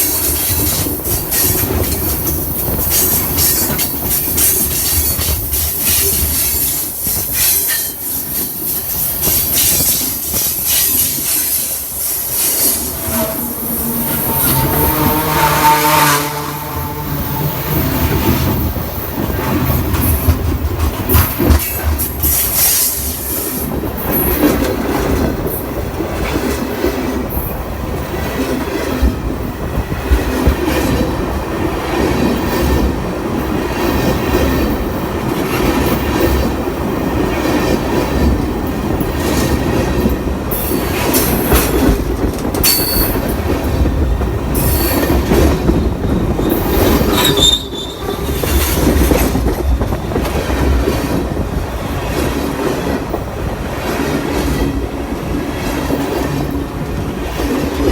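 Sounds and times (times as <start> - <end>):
clacks at rail joints: 0.0 - 15.8, 17.3 - 57.9
train wheels rumbling on rail: 0.0 - 57.9
high wheel squeal: 10.6 - 18.0, 45.8 - 48.9.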